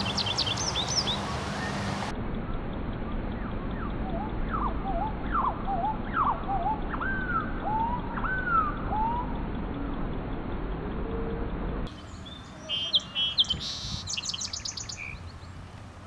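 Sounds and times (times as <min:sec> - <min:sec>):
slowed-down bird song: 0:00.0 - 0:16.0.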